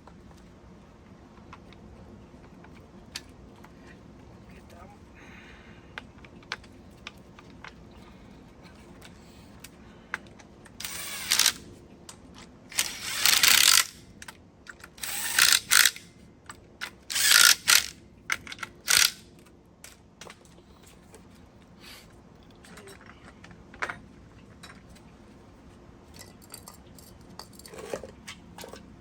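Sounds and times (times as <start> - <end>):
metal parts clicking: 10.8 - 11.6, 12.7 - 14.0, 14.9 - 16.1, 16.8 - 19.2
ratcheting tool: 10.8 - 11.6, 12.7 - 14.0, 15.0 - 16.1, 17.1 - 19.2.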